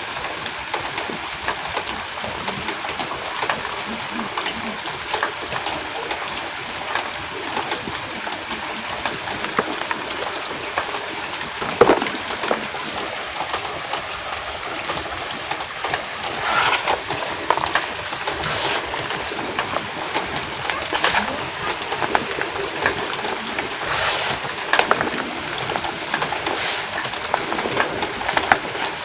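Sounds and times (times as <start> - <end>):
steady rain falling: 0.0 - 29.0
chalk being crushed: 9.4 - 10.8, 11.6 - 12.8, 16.3 - 20.0, 20.8 - 29.0.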